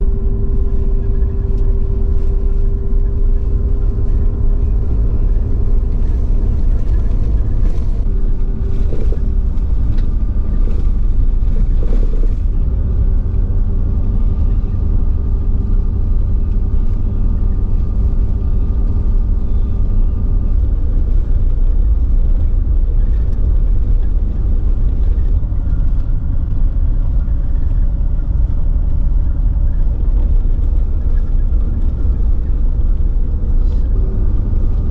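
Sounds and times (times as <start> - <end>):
vehicle engine low rumble: 0.0 - 34.9.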